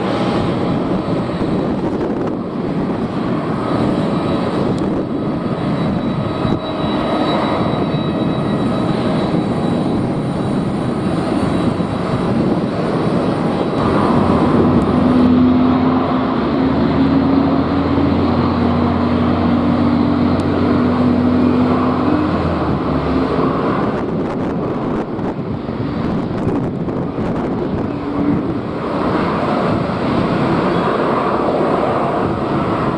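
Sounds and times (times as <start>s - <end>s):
low drone and hum: 0.0s - 25.4s
jet engines roaring: 0.0s - 32.9s.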